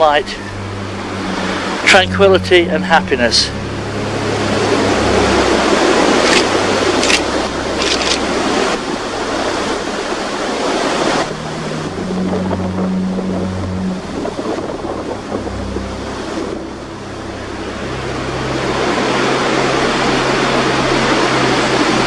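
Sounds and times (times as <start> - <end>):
wind buffeting microphone: 3.6 - 22.0.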